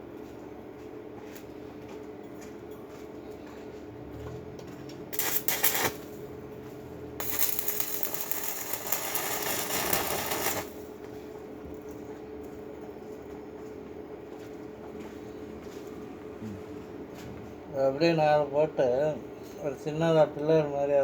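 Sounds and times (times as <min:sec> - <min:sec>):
constant low hum: 0:00.0 - 0:21.0
electric arc welding crackle: 0:05.1 - 0:06.3, 0:07.2 - 0:11.0.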